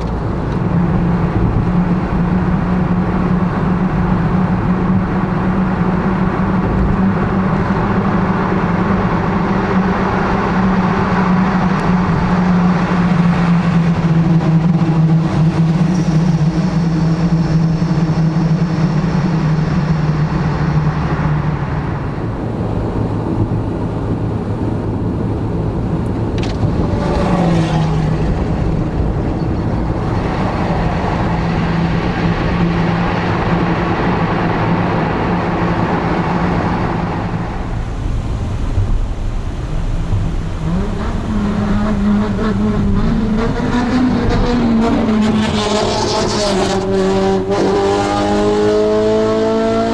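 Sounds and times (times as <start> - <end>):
car engine and exhaust running: 0.0 - 49.9.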